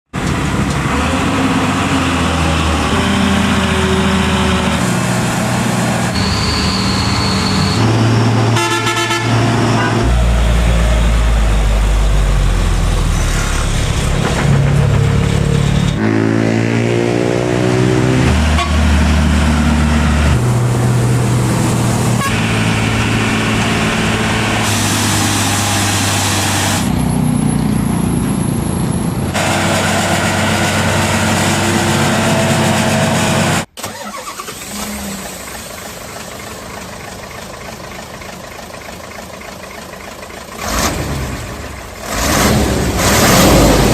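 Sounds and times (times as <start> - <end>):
truck diesel engines under load: 0.1 - 43.9
vehicle horn: 6.1 - 10.2, 16.0 - 16.9, 18.4 - 19.0, 22.2 - 22.6.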